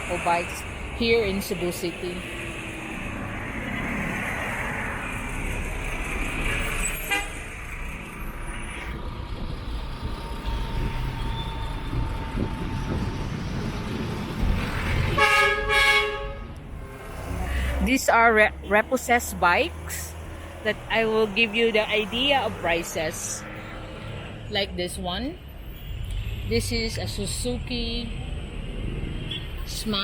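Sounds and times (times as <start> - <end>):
street traffic noise: 0.0 - 30.0
vehicle horn toots: 7.0 - 7.4, 15.2 - 16.5.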